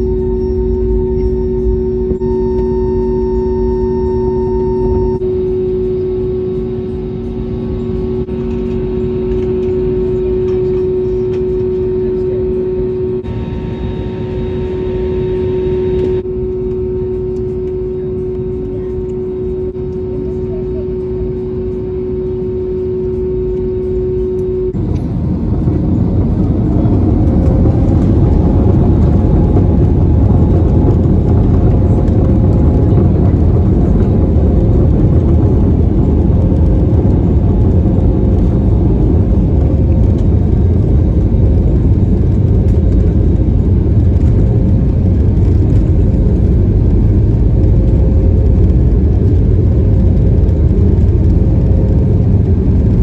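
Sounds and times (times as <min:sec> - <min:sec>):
jet engine rumble: 0:00.0 - 0:53.0
jet engines spooling up: 0:23.1 - 0:53.0.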